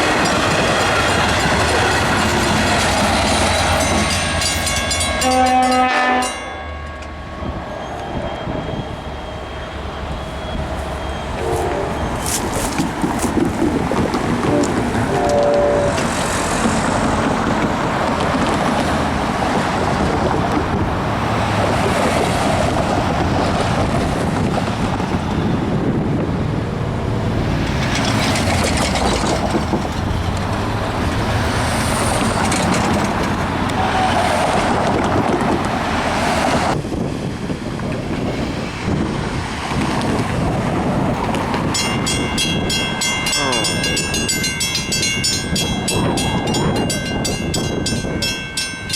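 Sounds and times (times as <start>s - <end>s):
crossing bell ringing: 0.0s - 12.8s, 41.6s - 48.9s
train wheels on rails: 0.0s - 48.9s.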